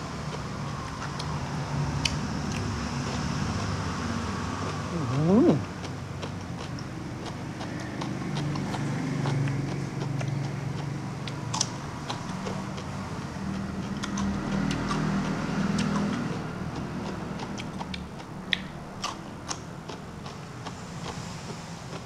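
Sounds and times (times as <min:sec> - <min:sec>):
man chewing: 0:00.0 - 0:22.0
wet smacks and clicks: 0:04.6 - 0:12.9, 0:13.5 - 0:21.2.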